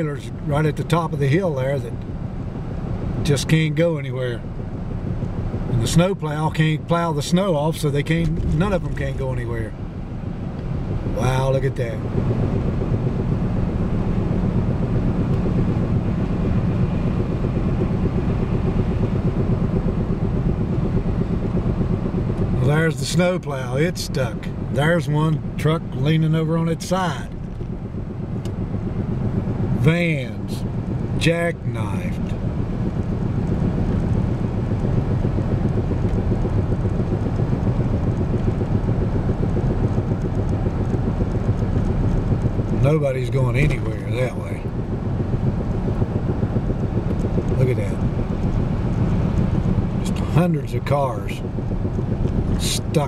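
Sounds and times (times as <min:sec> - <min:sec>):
truck engine from inside cab: 0:00.0 - 0:53.0.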